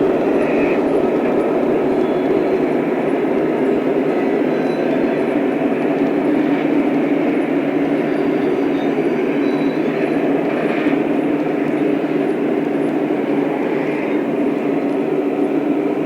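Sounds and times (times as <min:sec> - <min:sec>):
model train rumbling: 0:00.0 - 0:16.0.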